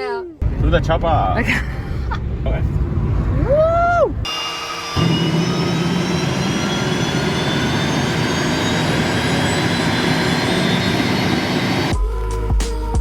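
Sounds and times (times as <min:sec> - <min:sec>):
helicopter turbine engine running: 0:04.2 - 0:11.9.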